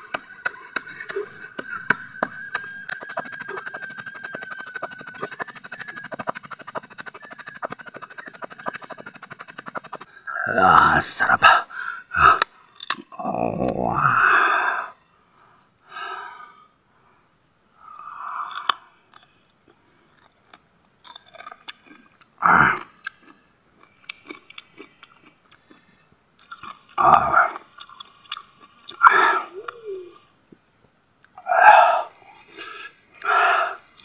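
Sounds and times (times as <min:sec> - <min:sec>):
loud breathy mouth sounds: 0:00.0 - 0:15.0, 0:21.8 - 0:30.3, 0:31.3 - 0:34.0
crisp chewing crunches: 0:18.4 - 0:29.0.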